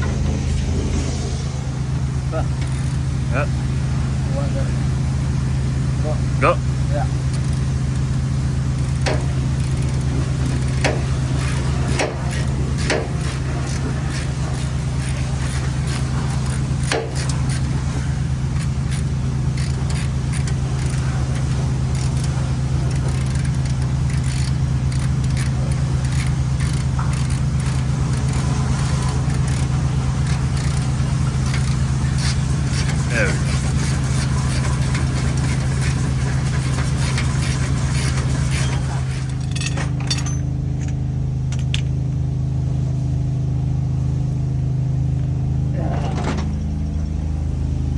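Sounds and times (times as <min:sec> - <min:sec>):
engine idling: 0:00.0 - 0:47.9
sharp clicks and knocks: 0:07.3 - 0:42.0.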